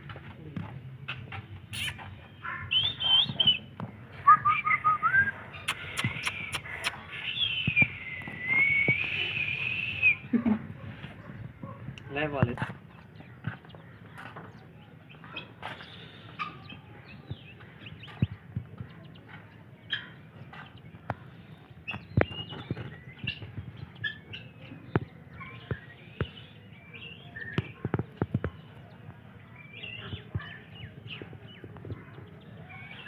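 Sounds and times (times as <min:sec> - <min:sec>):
small birds chirping: 0:00.0 - 0:33.0
sharp clicks: 0:05.6 - 0:07.9.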